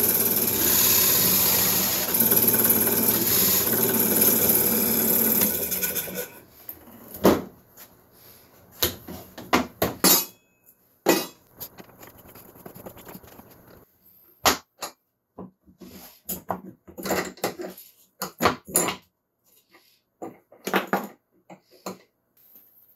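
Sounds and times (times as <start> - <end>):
power tool running: 0.0 - 6.4.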